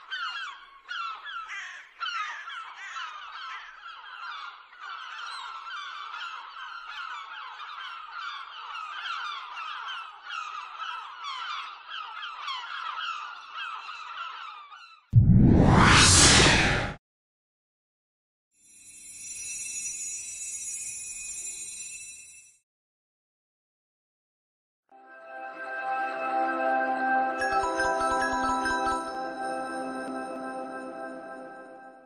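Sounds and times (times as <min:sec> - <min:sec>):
flock of birds calling: 0:00.0 - 0:15.0.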